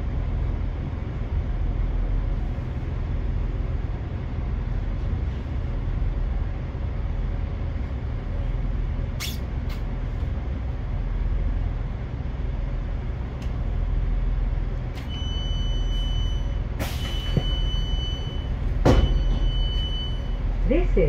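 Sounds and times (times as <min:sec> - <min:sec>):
diesel train rumbling: 0:00.0 - 0:21.0
train doors clunking: 0:14.9 - 0:20.4
electronic warning beeps: 0:15.1 - 0:20.4.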